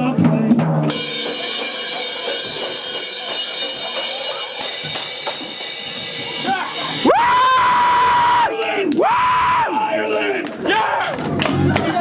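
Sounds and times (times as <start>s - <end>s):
drum kit playing: 0.0s - 8.2s
cymbals crashing: 0.9s - 8.2s.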